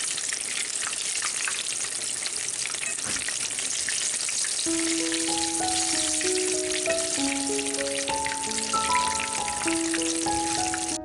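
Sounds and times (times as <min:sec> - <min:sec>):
food sizzling in hot oil: 0:00.0 - 0:11.0
background music with held notes: 0:04.7 - 0:11.0.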